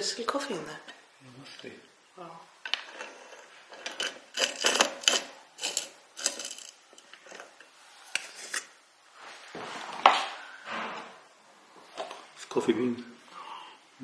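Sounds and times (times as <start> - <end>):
coffee beans rattling in container: 3.8 - 6.8.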